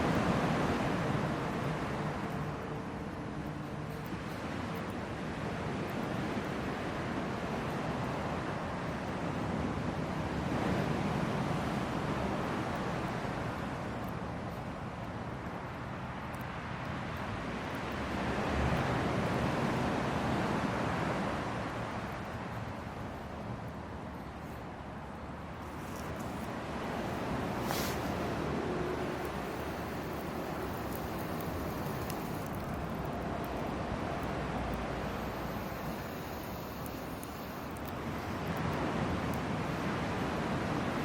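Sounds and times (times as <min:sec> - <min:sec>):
fire crackling in a fire pit: 0:00.0 - 0:41.0
rushing wind-like noise: 0:00.0 - 0:41.0
fire burning: 0:25.3 - 0:41.0.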